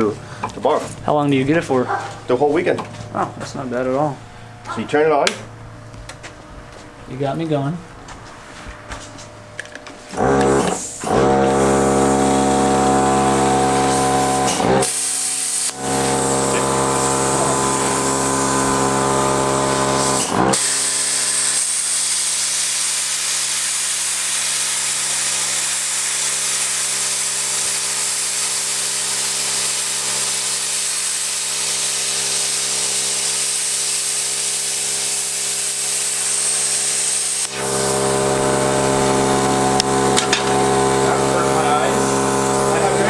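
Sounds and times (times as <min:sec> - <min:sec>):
electrical hum: 0:00.0 - 0:20.7, 0:36.4 - 0:43.0
hiss of air: 0:13.3 - 0:39.2.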